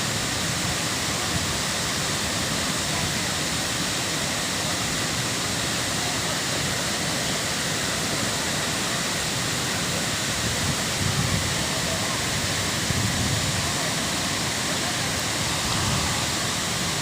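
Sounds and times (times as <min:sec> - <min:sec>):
waterfall pouring: 0:00.0 - 0:17.0.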